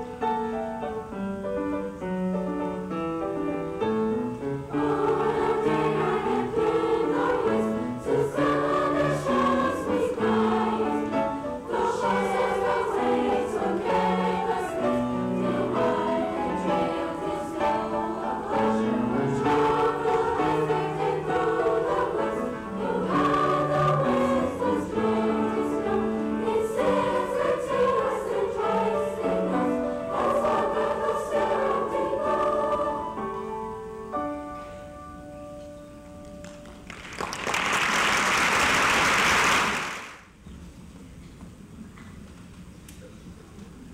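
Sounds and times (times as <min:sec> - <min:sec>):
choir singing in parts: 0:04.4 - 0:33.9.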